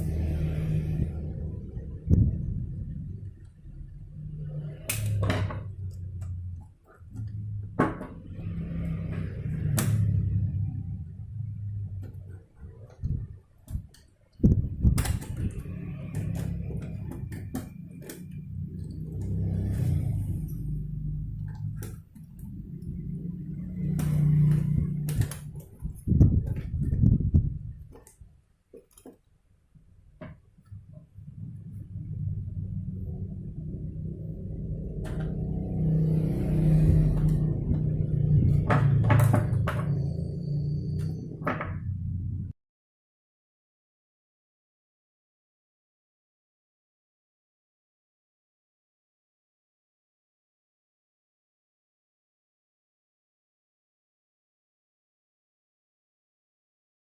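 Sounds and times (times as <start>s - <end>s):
low hum: 0.0s - 28.3s, 30.0s - 42.6s.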